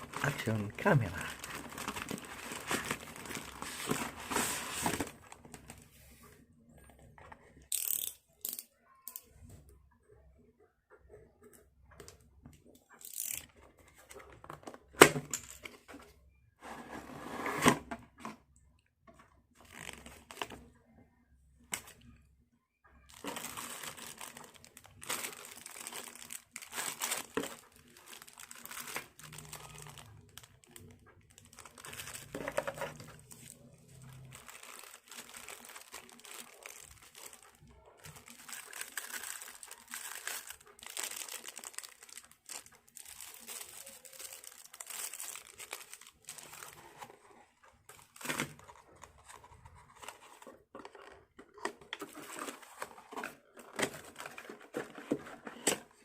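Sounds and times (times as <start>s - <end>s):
packaging crinkling and rustling: 0.0s - 5.9s, 23.1s - 56.0s
packaging tearing: 38.2s - 47.0s.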